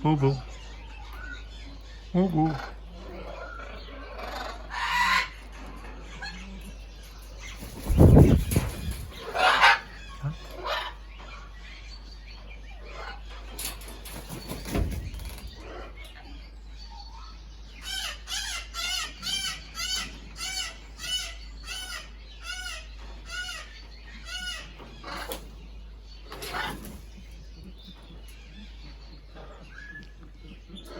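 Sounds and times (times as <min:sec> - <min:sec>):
bird calling: 0:07.4 - 0:13.3
thumps and rustles: 0:14.4 - 0:15.6.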